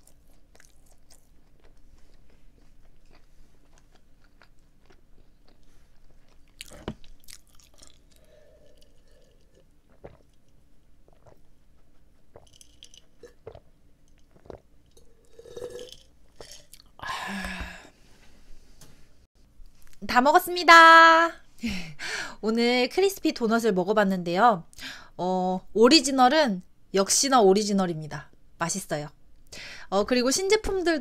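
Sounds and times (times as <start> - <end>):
person chewing: 0.0 - 17.0
person drinking: 5.5 - 10.4, 11.0 - 17.8.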